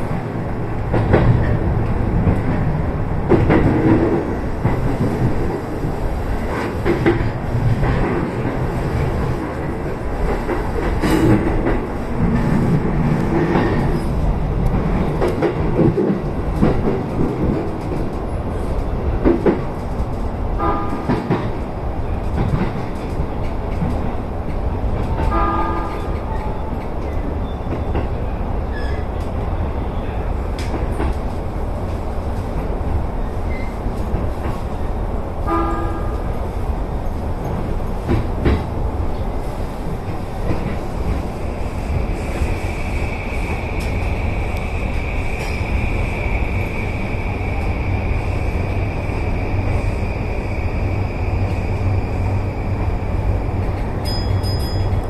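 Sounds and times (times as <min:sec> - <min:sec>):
train wheel and track rumble: 0:00.0 - 0:55.0
rail-joint clatter: 0:00.1 - 0:29.4, 0:53.5 - 0:55.0
train horn blasts: 0:20.6 - 0:21.2, 0:25.3 - 0:26.2, 0:35.4 - 0:36.3.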